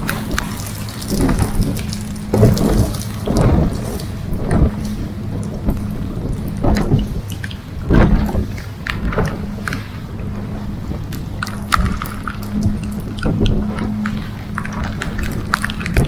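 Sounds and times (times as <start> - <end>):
boat engine humming: 0.0 - 16.0
wind gusts on microphone: 0.0 - 16.0.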